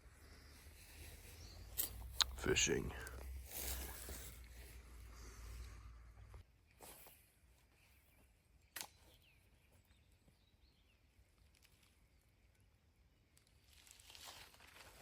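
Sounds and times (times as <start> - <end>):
faint bird chirps: 0.0 - 2.7.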